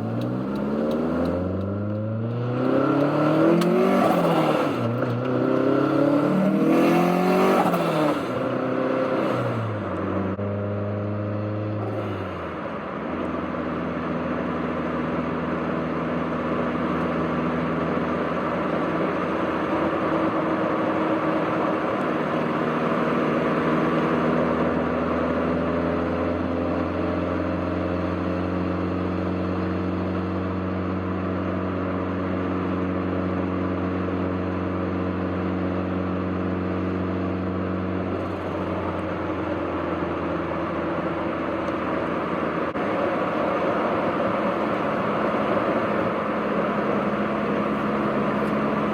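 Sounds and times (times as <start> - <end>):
car engine droning: 0.0 - 48.9.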